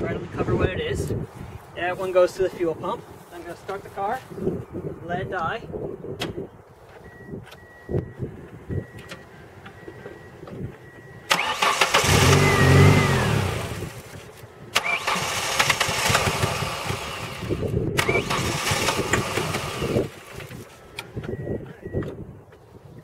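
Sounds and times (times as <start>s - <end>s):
car engine starting and cranking: 8.9s - 22.2s.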